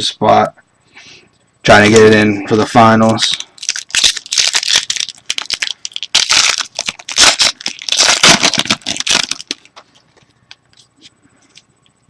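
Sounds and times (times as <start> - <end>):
wrapper tearing and crinkling: 3.1 - 9.7.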